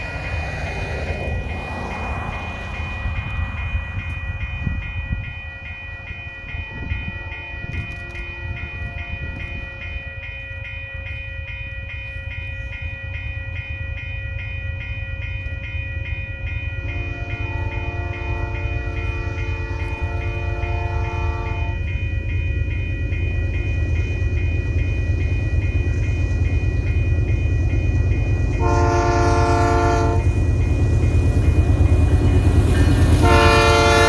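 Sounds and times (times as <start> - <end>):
freight train rumbling past: 0.0 - 34.0
pulsing high ringing tone: 0.0 - 34.0.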